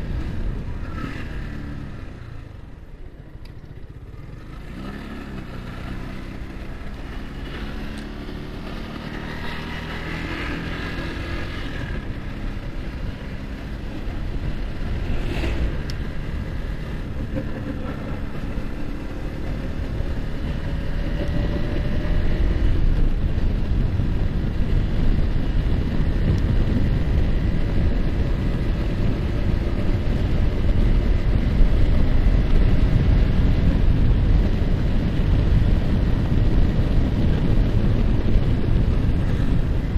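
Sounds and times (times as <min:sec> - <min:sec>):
wind noise on microphone: 0:00.0 - 0:02.9, 0:06.1 - 0:39.9
motorcycle engine accelerating: 0:00.0 - 0:39.9.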